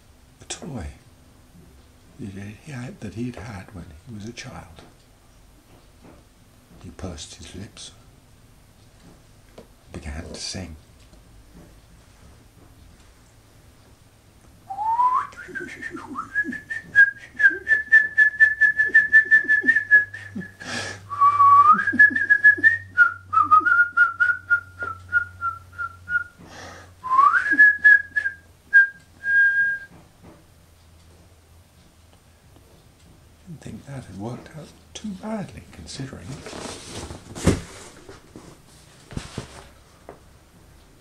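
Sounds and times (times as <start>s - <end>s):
person whistling a warble: 14.7s - 25.4s
intakes of breath: 26.4s - 27.0s.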